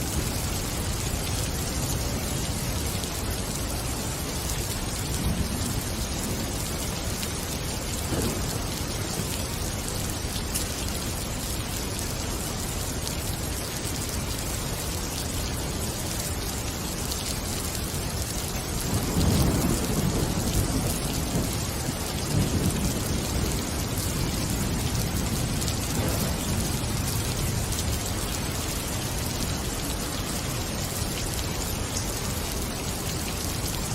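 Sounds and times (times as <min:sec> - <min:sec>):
rain falling in forest: 0:00.0 - 0:33.9
low thunder rumble: 0:05.0 - 0:09.7, 0:18.8 - 0:28.4.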